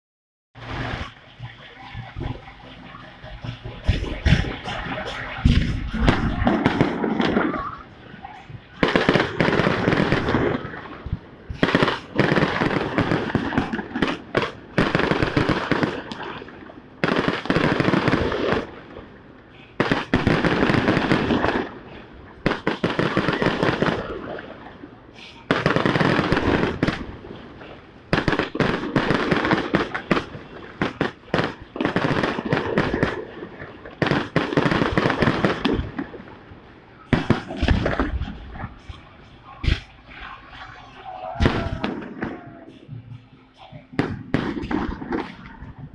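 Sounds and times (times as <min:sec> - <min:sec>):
fireworks crackling bursts: 0:00.6 - 0:45.9.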